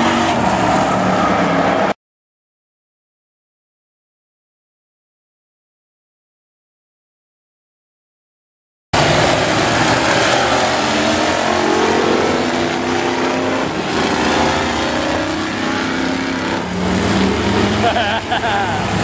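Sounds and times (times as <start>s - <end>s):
truck engines revving: 0.0s - 2.0s, 9.0s - 19.0s
wash of noise: 9.0s - 19.0s.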